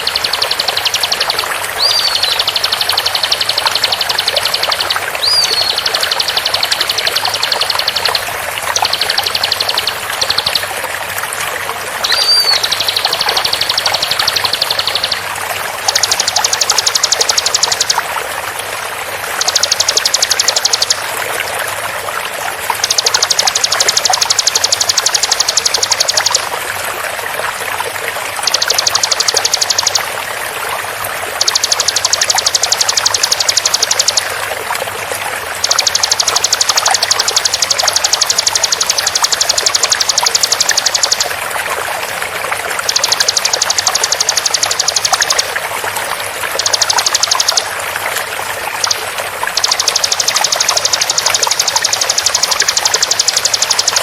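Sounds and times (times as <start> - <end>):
bird trilling: 0.0 - 10.7, 12.0 - 15.2, 15.9 - 18.0, 19.4 - 21.1, 28.4 - 30.1, 35.6 - 41.3, 49.6 - 54.0
running water: 0.0 - 54.0
short upswept bird whistles: 1.8 - 2.6, 5.2 - 5.9, 12.0 - 13.1.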